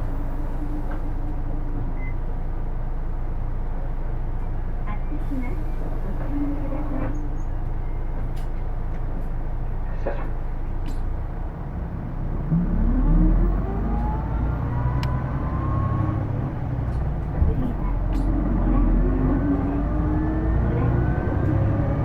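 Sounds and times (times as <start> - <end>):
bus diesel engine running: 0.0 - 22.0
transmission whine: 12.4 - 22.0.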